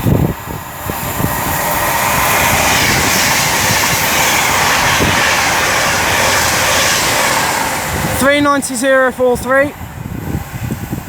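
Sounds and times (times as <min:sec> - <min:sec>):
light clickety-clack of wheels: 0:00.0 - 0:11.0
train passing at speed: 0:00.0 - 0:11.0.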